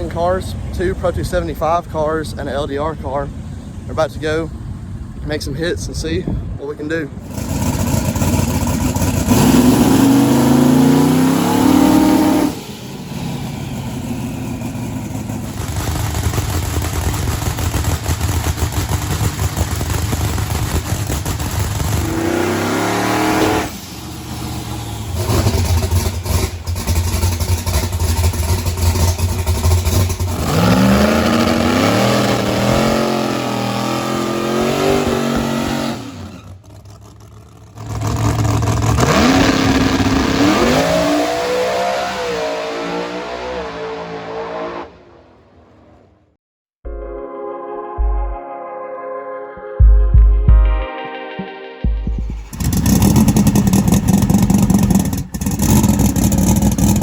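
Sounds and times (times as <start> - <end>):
race car engines revving: 7.1 - 45.9, 52.2 - 57.0.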